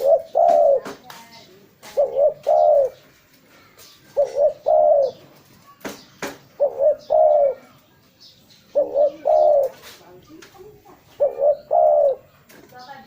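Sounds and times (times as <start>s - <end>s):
dove cooing: 0.0s - 3.1s, 4.0s - 5.3s, 6.5s - 7.8s, 8.7s - 10.0s, 10.7s - 12.3s.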